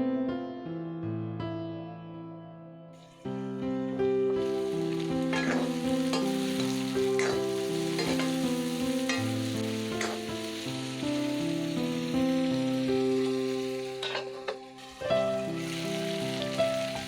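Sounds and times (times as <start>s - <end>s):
slow instrumental music: 1.5s - 17.0s
food sizzling in a pan: 3.0s - 17.0s
spatula scraping a pan: 5.3s - 10.3s, 14.0s - 14.6s.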